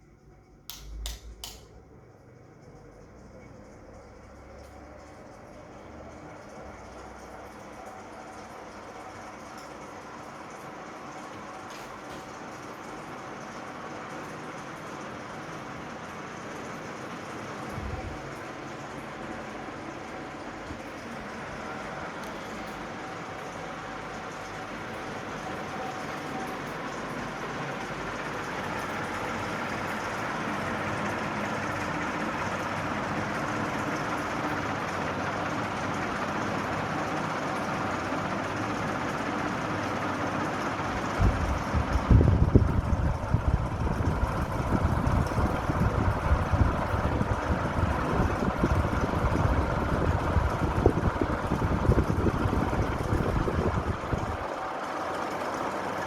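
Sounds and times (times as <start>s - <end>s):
ceiling fan whirring: 0.0s - 56.0s
wind buffeting microphone: 41.2s - 54.4s.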